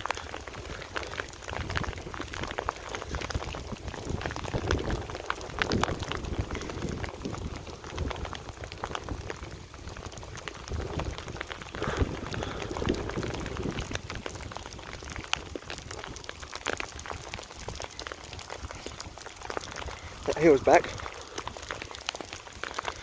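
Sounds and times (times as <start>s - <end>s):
heavy rain falling: 0.0s - 23.0s
sharp raindrop taps: 0.0s - 23.0s
low thunder rumble: 1.5s - 16.3s.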